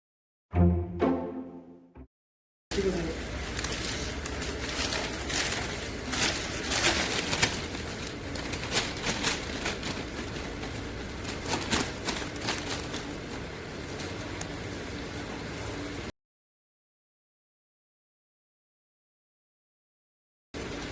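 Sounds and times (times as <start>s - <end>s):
vacuum pump humming: 2.7s - 16.1s.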